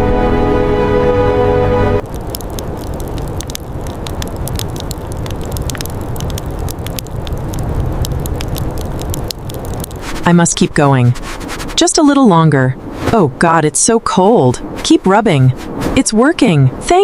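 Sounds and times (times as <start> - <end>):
fire crackling: 1.7 - 12.2, 12.8 - 13.5, 14.6 - 16.1.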